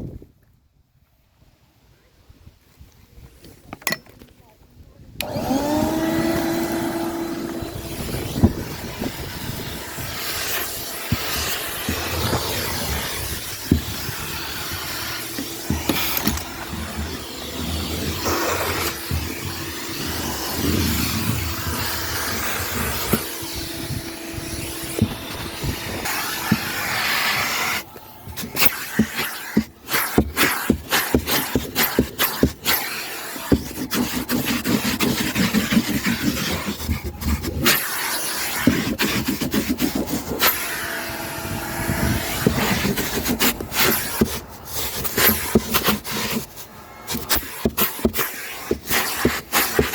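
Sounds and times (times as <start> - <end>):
vacuum cleaner running: 5.2 - 36.7, 37.7 - 45.6
vacuum nozzle knocking and rattling: 10.2 - 23.4.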